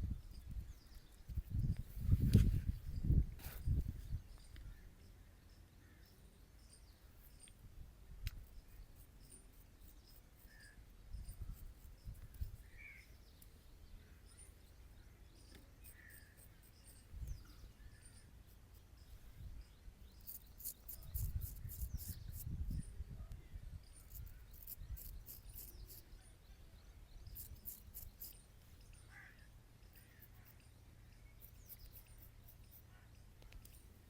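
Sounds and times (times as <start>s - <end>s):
faint bird chirps: 0.0s - 34.0s
razor scraping stubble: 0.3s - 4.2s, 8.2s - 13.5s, 15.4s - 22.9s, 23.8s - 26.3s, 27.1s - 34.0s.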